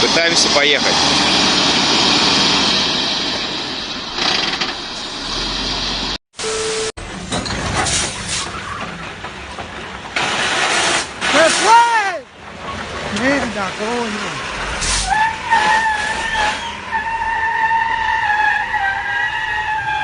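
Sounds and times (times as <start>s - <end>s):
truck engine straining: 0.0s - 20.0s
vehicle noise: 0.0s - 20.0s.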